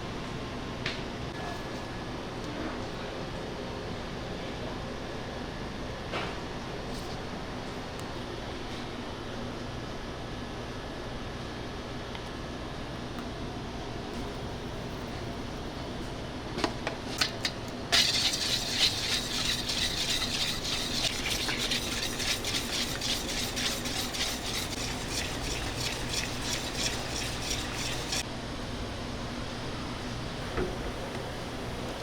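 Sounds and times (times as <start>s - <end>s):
utensil scraping and stirring: 17.9s - 28.2s
utensil tapping: 18.0s - 28.2s.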